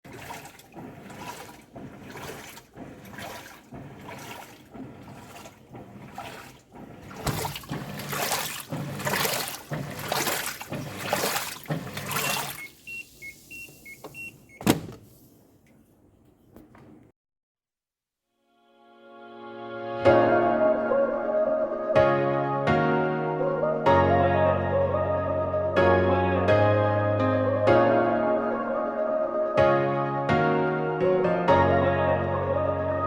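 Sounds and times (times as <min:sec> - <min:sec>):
washing machine agitator swishing: 0:00.0 - 0:15.4
washing machine click: 0:00.1 - 0:15.1.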